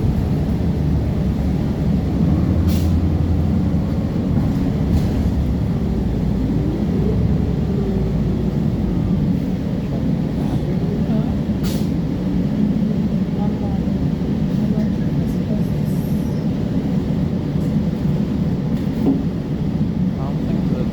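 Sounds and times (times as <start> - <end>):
bus engine rumbling: 0.0 - 20.9
bus air hisses: 2.6 - 3.0, 11.6 - 12.0.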